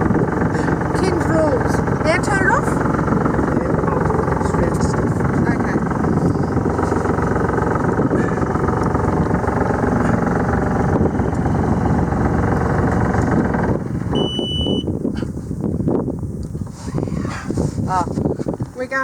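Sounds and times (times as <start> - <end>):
boat engine running: 0.0 - 19.0
short high beep: 14.1 - 14.9.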